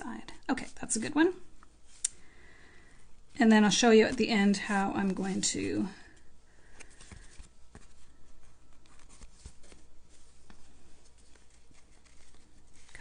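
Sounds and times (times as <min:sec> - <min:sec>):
paper rustling: 0:06.6 - 0:13.0.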